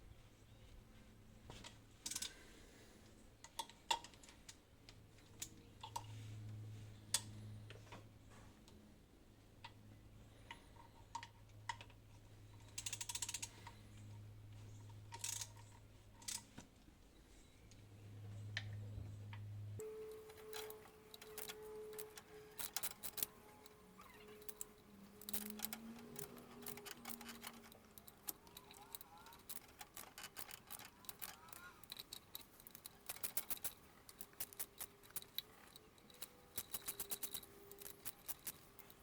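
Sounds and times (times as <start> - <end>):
faint steady tone: 17.0 - 39.0
hand tools clinking on metal: 19.8 - 39.0
ratcheting: 19.8 - 39.0.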